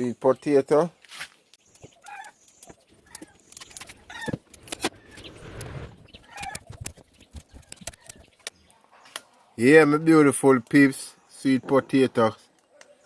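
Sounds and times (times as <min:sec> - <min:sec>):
chickens clucking: 0:01.8 - 0:08.5.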